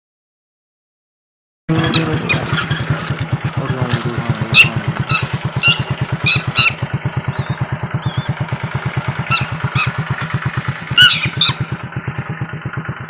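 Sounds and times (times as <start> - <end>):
bird calling sharply: 1.7 - 3.4, 4.2 - 11.8
small motorcycle engine running: 1.7 - 13.0.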